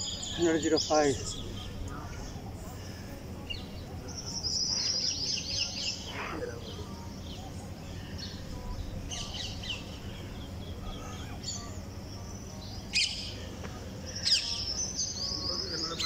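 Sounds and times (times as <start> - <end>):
birds chirping: 0.0 - 16.0
low background noise: 0.0 - 16.0
loud sharp bird calls: 12.8 - 16.0.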